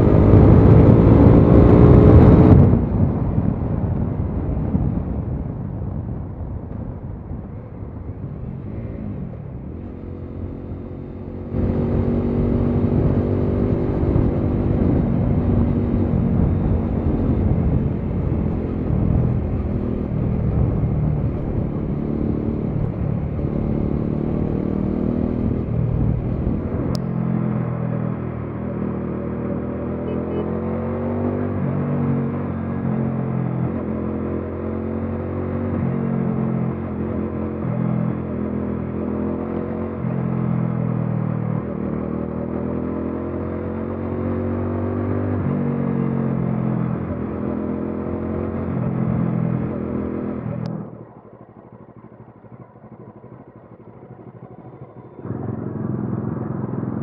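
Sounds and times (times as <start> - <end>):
motorcycle engine running: 0.0 - 30.6, 46.3 - 57.0.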